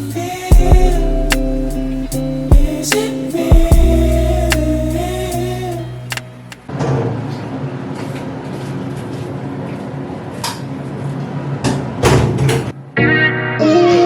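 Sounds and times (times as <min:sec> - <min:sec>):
low hum: 0:00.0 - 0:06.7.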